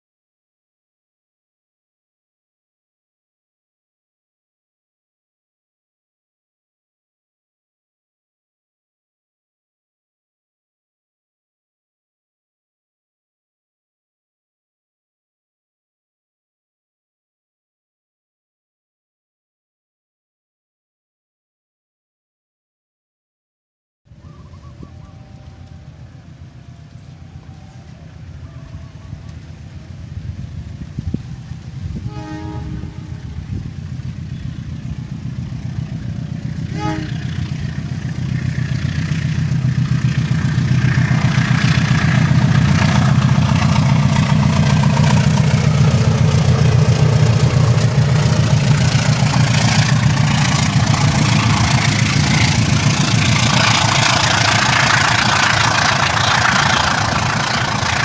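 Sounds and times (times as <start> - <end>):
train engine rumble: 24.1 - 58.0
train horn toots: 24.8 - 30.2, 31.0 - 34.8, 36.6 - 37.9, 49.3 - 55.0.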